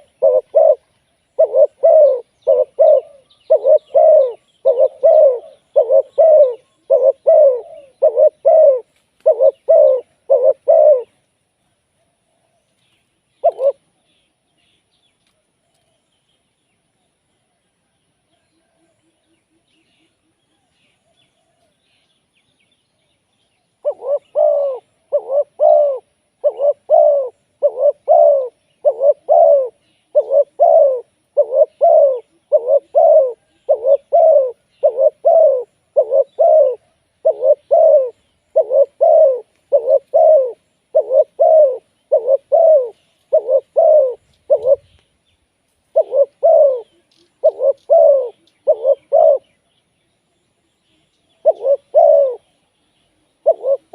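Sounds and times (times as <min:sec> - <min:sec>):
dove cooing: 0:00.0 - 0:11.3, 0:13.4 - 0:14.0, 0:23.8 - 0:45.1, 0:45.9 - 0:49.6, 0:51.3 - 0:52.7, 0:53.4 - 0:53.9.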